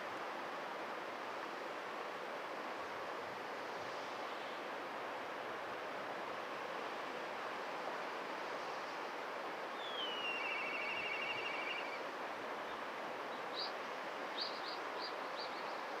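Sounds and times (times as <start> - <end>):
steady background hiss: 0.0 - 16.0
kite whistling call and trill: 9.9 - 12.0.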